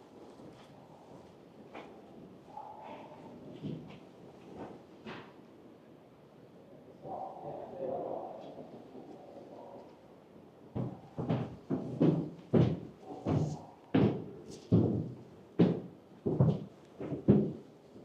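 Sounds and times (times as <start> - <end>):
footsteps on hollow floor: 10.7 - 18.0.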